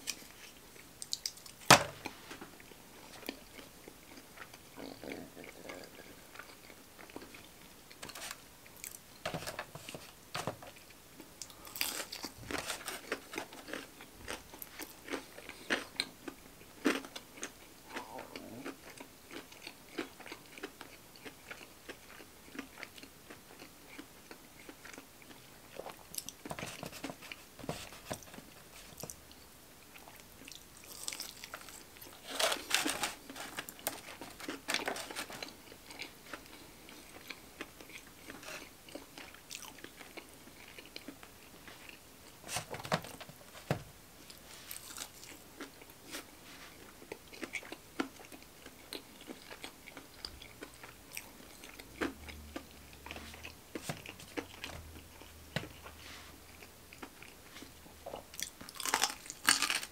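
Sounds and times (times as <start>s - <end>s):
crunchy chewing: 10.6s - 42.4s, 44.3s - 59.9s.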